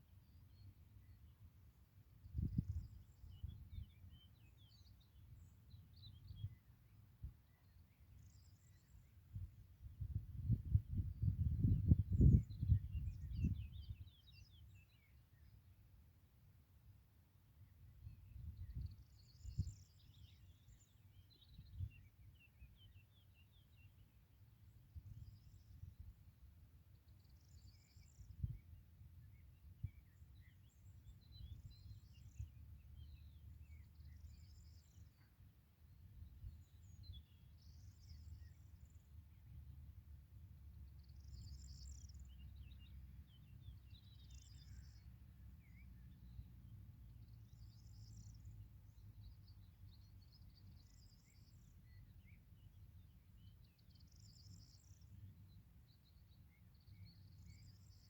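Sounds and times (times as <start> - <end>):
bird chirping: 40.9 - 46.4, 47.2 - 58.0.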